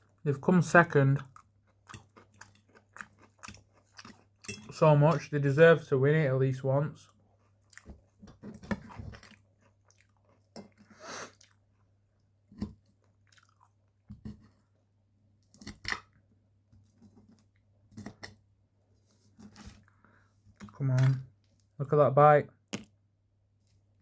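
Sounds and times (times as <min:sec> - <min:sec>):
food crunching: 0:00.0 - 0:05.3, 0:07.0 - 0:14.0
chewing and biting food: 0:01.2 - 0:04.5, 0:07.1 - 0:14.0.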